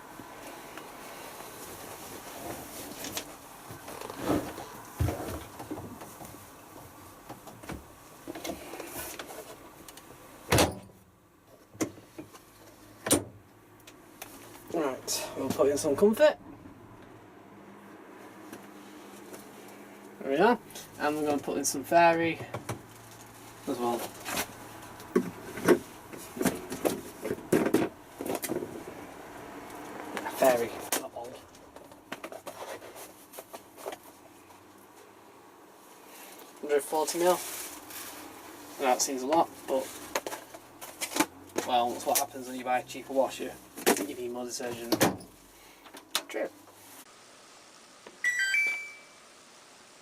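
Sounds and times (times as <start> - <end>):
rustling: 0.4 - 10.1, 35.8 - 42.3.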